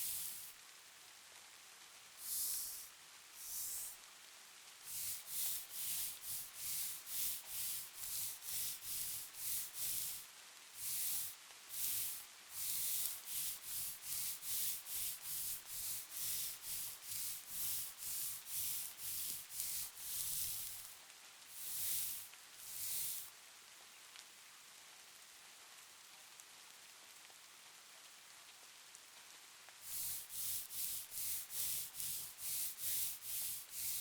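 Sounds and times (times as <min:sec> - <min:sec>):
rubbing wiping strokes: 0:00.0 - 0:00.5, 0:02.2 - 0:04.0, 0:04.9 - 0:10.2, 0:10.8 - 0:20.9, 0:21.5 - 0:23.3, 0:29.8 - 0:34.0.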